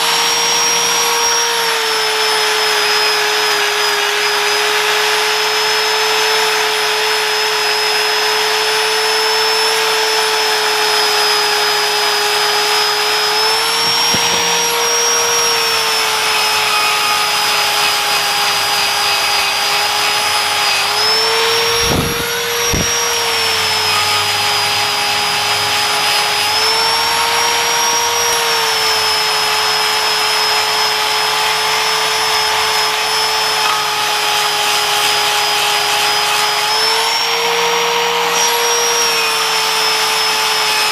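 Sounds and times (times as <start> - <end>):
power tool whining on metal: 0.0 - 40.9
short knocks: 13.7 - 14.7.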